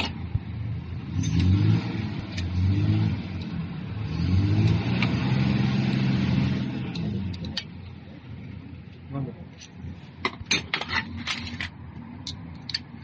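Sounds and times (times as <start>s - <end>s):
diesel engine revving: 0.0s - 8.4s.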